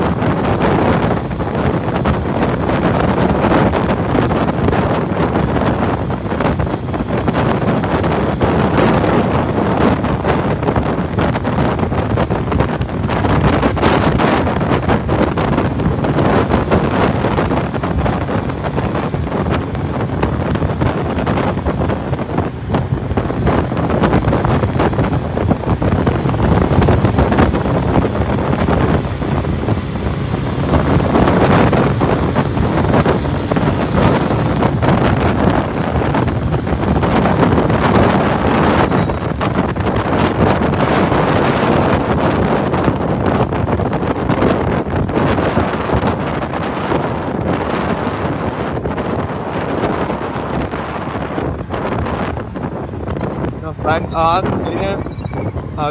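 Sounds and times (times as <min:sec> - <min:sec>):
motorcycle engine: 0:00.0 - 0:41.4
wind buffeting microphone: 0:00.0 - 0:55.9.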